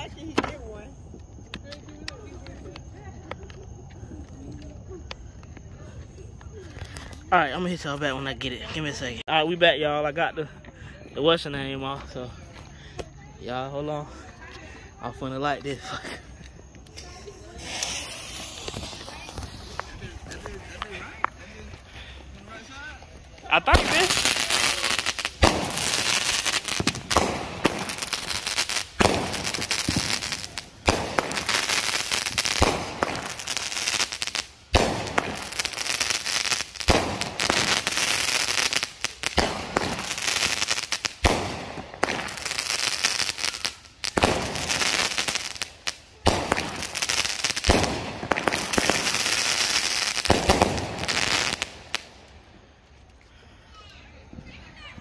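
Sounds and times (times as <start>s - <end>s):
firework crackle: 16.7s - 53.0s
firework launch and burst reports: 23.5s - 25.8s.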